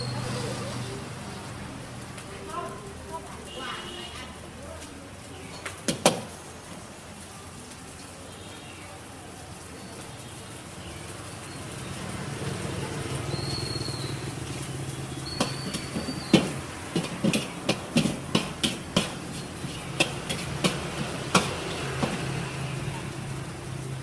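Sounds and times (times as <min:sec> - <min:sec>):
sharp knocks: 0:15.3 - 0:22.3.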